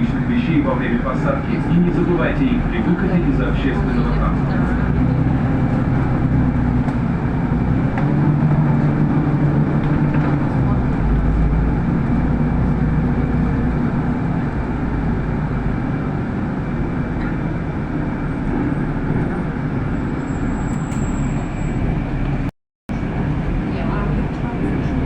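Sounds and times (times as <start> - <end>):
bus engine rumble: 0.0 - 25.0
road noise: 0.0 - 25.0.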